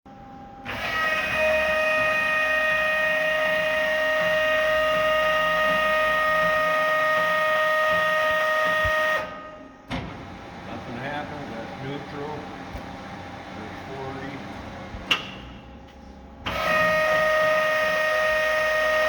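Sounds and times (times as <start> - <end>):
lathe running with high whine: 0.7 - 9.2.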